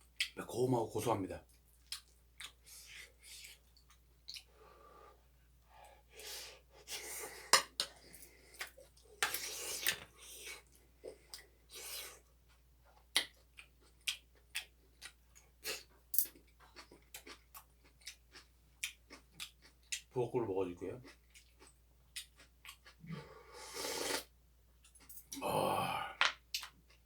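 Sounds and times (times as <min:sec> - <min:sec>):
wet mouth clicks from chewing: 0:03.5 - 0:04.5, 0:13.1 - 0:15.2, 0:21.1 - 0:23.1.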